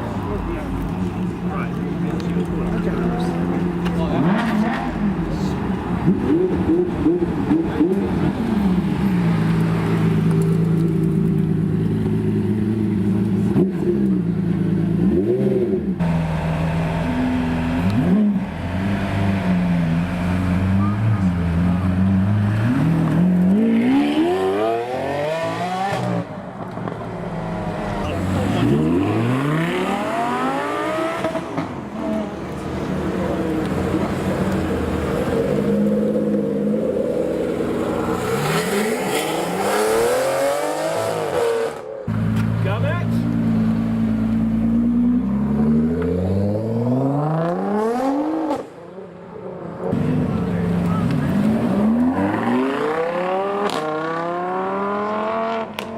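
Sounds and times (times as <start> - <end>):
car engine accelerating: 0.0 - 48.8, 49.9 - 55.9.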